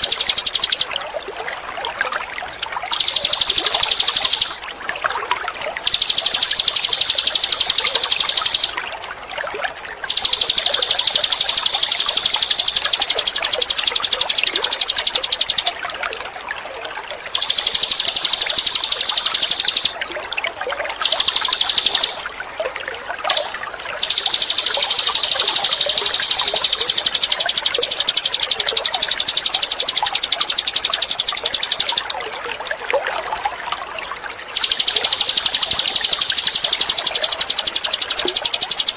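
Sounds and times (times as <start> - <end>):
insect high pulsed buzz: 0.0 - 1.0, 2.9 - 4.6, 5.9 - 8.8, 10.1 - 15.8, 17.4 - 20.1, 21.0 - 22.3, 23.3 - 32.0, 34.6 - 38.9
trickle of running water: 0.0 - 38.9.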